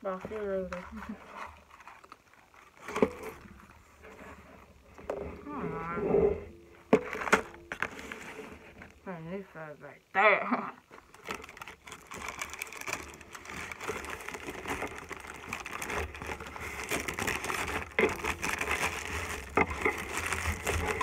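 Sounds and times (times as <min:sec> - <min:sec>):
packaging rustling and crinkling: 0:00.0 - 0:09.1, 0:10.9 - 0:21.0.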